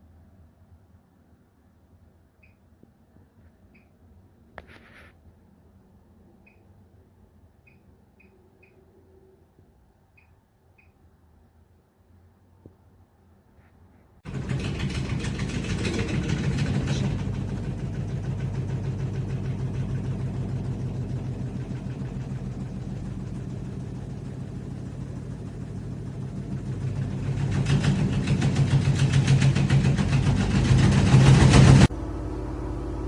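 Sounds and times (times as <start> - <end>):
washing machine drum spinning: 14.2 - 33.0.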